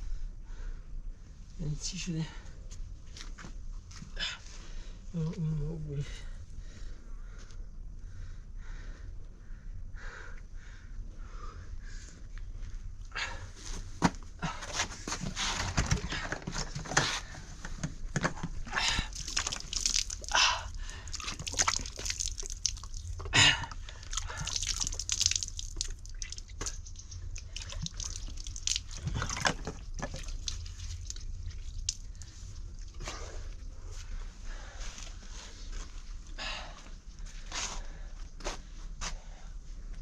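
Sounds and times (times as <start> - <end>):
water sloshing and dripping: 18.1 - 34.6
small water splashes: 19.0 - 33.0.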